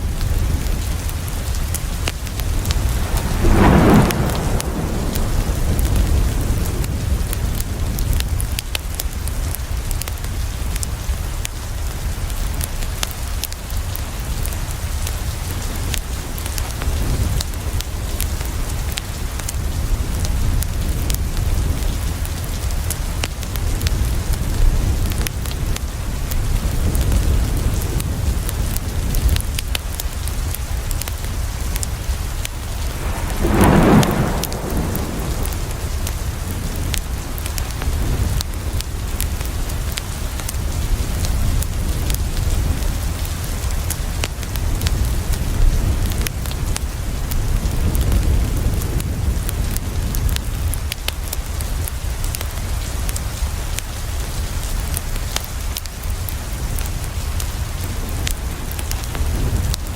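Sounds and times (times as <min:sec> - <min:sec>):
low thunder rumble: 0:00.0 - 0:08.6, 0:31.4 - 0:39.9
steady rain: 0:00.0 - 0:59.9
roll of thunder: 0:01.4 - 0:08.1, 0:31.8 - 0:38.8.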